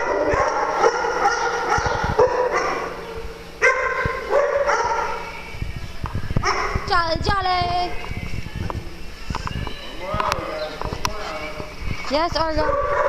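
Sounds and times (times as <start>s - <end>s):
dog barking and yipping: 0.0s - 5.2s, 12.6s - 13.0s.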